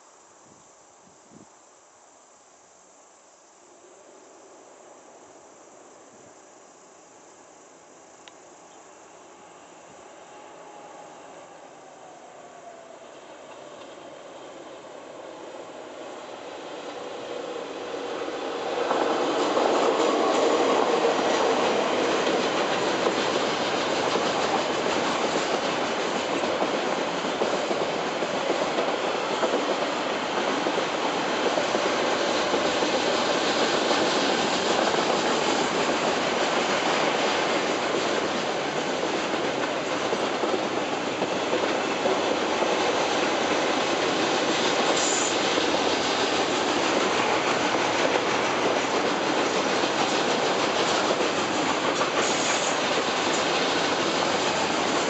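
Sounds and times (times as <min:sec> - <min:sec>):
diesel locomotive engine: 0:08.3 - 0:55.0
train wagons rolling: 0:16.4 - 0:55.0.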